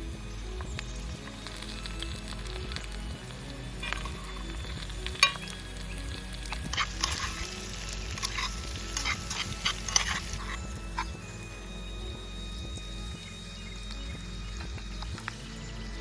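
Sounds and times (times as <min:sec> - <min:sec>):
crackles and pops: 0:00.5 - 0:11.3, 0:12.5 - 0:15.7
food sizzling in a pan: 0:05.1 - 0:11.1.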